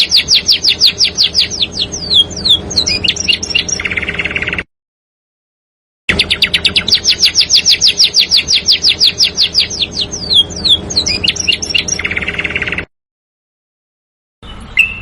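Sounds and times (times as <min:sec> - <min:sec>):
songbird singing: 0:00.0 - 0:04.7, 0:06.1 - 0:12.9, 0:14.4 - 0:15.0.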